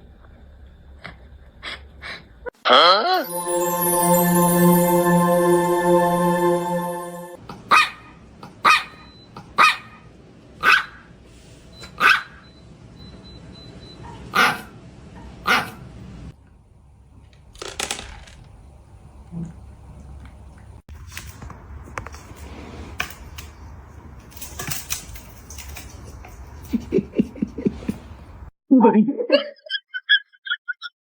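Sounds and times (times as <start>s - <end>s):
background music: 3.2s - 7.4s
dog barking: 7.7s - 9.0s, 9.6s - 10.0s, 10.6s - 11.1s, 12.0s - 12.4s, 14.3s - 14.7s, 15.4s - 15.8s.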